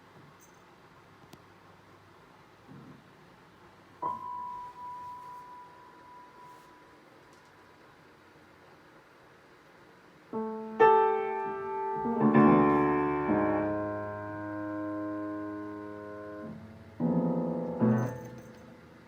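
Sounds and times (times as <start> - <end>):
clashing piano note clusters: 4.0 - 6.9, 10.8 - 19.0.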